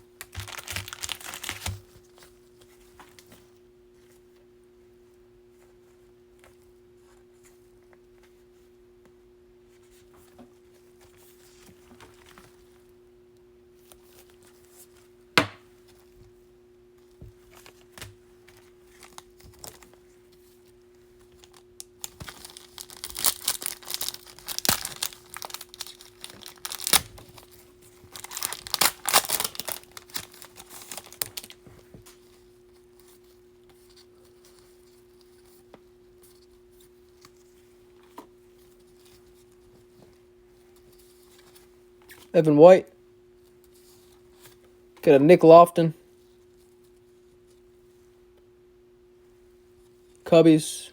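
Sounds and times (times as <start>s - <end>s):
faint steady hum: 0.0s - 50.9s
foil wrapper tearing and crinkling: 0.2s - 2.0s, 18.9s - 19.9s, 21.4s - 31.6s.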